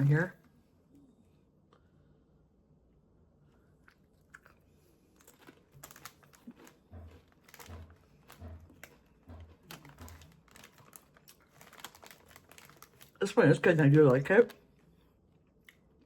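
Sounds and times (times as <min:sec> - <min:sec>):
person crunching tortilla chips: 0:03.9 - 0:14.7.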